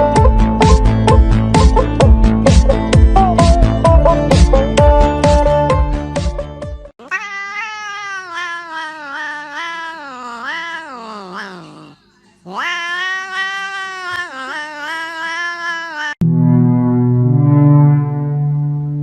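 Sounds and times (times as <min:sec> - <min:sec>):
cat yowling: 0:07.0 - 0:16.2.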